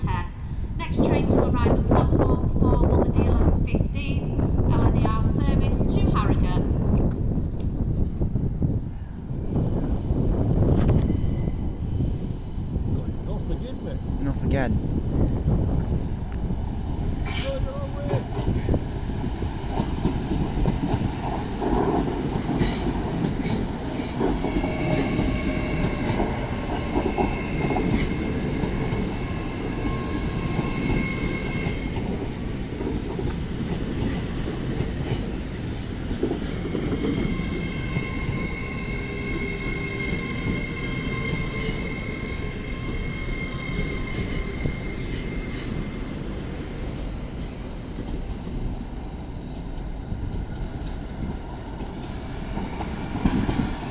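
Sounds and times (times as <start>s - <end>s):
train rumbling on rails: 0.0s - 53.9s
train wheels squealing: 9.4s - 18.8s, 22.4s - 47.6s.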